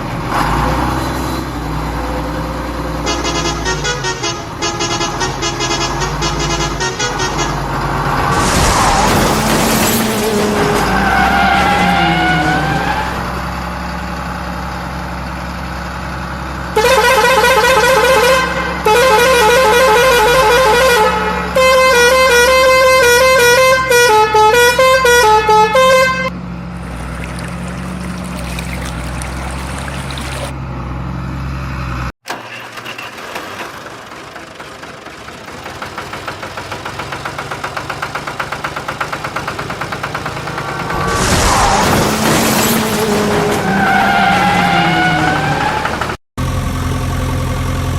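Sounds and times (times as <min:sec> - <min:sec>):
loud horn blasts: 0:03.0 - 0:08.2, 0:16.8 - 0:26.4
vehicle engine running: 0:26.3 - 0:32.1
engine chugging: 0:33.1 - 0:41.1.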